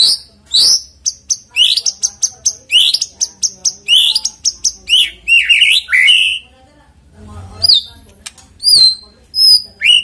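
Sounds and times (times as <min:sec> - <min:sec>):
songbird whistling and chattering: 0:00.0 - 0:06.5, 0:08.6 - 0:10.0.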